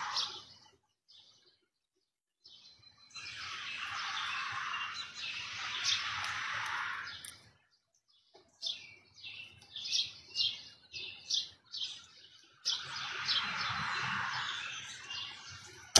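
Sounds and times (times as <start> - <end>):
songbird chirping: 0.0 - 15.9
steady outdoor hiss: 3.2 - 7.3.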